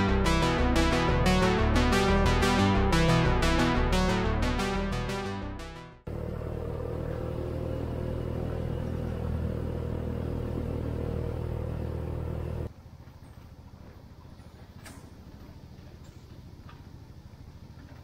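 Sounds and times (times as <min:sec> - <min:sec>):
vehicle engine droning: 0:06.0 - 0:18.0.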